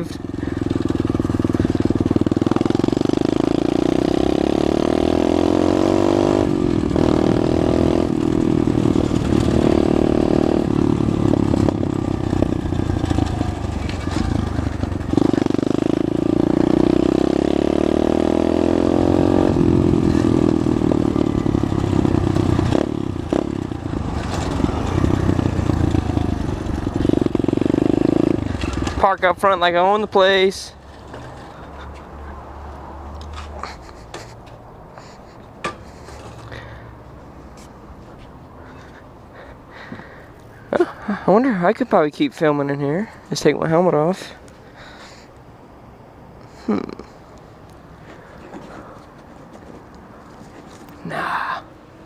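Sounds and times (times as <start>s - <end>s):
motorbike engine revving: 0.0s - 30.1s.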